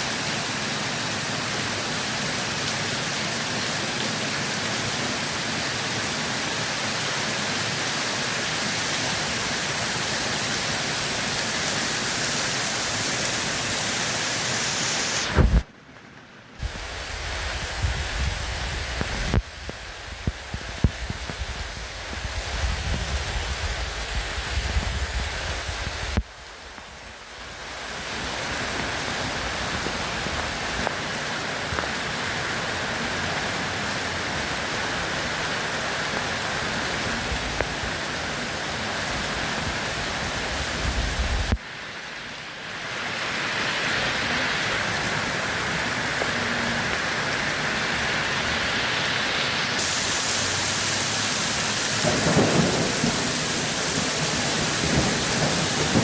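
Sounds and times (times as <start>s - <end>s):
steady rain: 0.0s - 56.0s
thunder rumbling: 51.0s - 56.0s.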